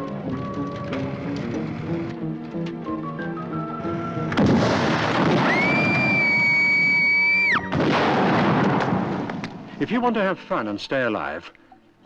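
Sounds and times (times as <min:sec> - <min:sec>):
music: 0:00.0 - 0:07.9
electric crackling: 0:04.1 - 0:09.6.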